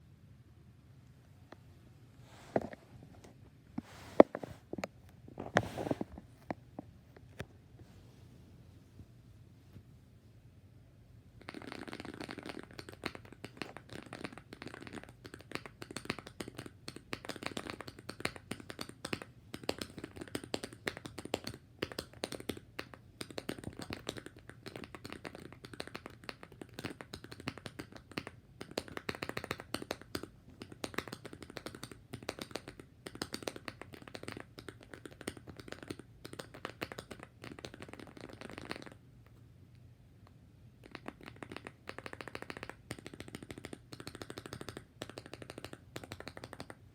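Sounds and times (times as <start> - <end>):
mechanical keyboard typing: 11.4 - 39.0, 40.8 - 46.8.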